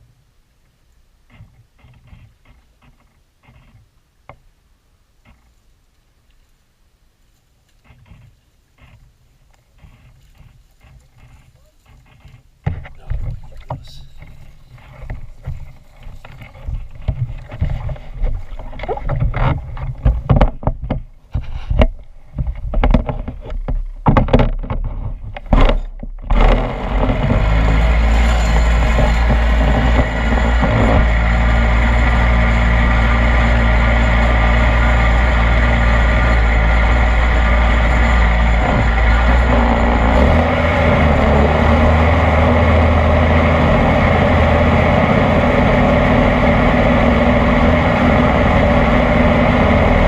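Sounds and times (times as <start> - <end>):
boat engine running: 9.7 - 50.0
thumps and splashes: 9.8 - 31.4.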